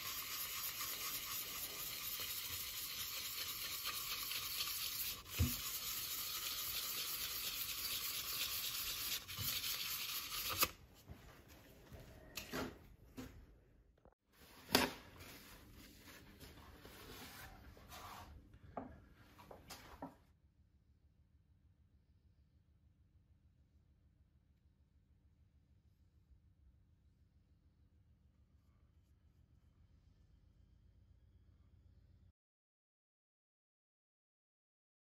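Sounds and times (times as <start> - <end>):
sanding wood on a lathe: 0.0 - 10.6.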